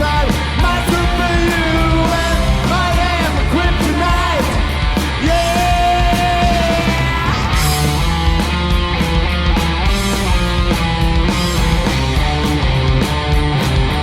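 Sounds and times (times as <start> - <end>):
lead singer singing: 0.0 - 7.7
rock band playing: 0.0 - 14.0.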